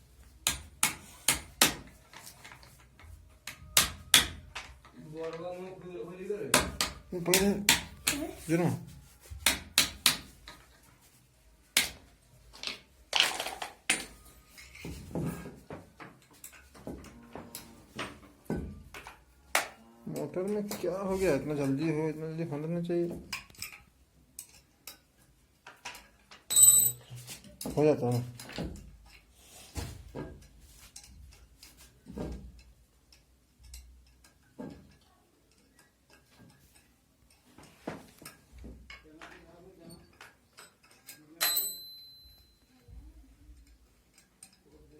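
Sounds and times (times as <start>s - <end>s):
metal parts and tools clinking: 12.4s - 21.9s, 23.2s - 29.3s, 30.1s - 44.9s.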